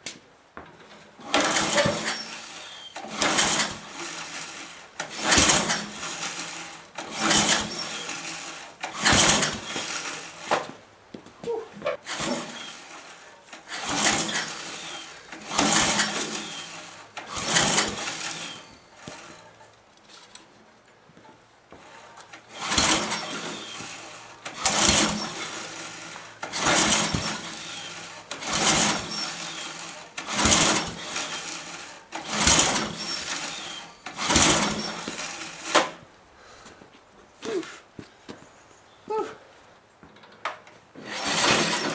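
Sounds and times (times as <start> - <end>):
engine recoil pull-start cranking: 1.2 - 10.8, 12.0 - 19.7, 21.8 - 36.0, 40.3 - 41.9.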